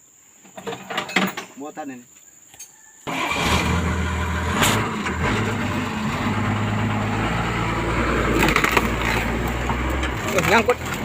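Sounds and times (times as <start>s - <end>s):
bulldozer diesel engine drone: 3.1s - 11.0s.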